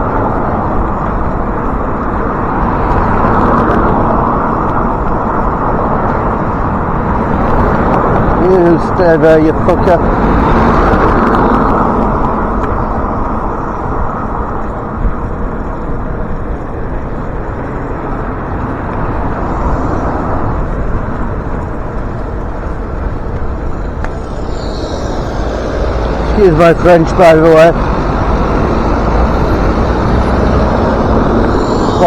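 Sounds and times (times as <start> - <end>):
road traffic rush: 0.0 - 32.0.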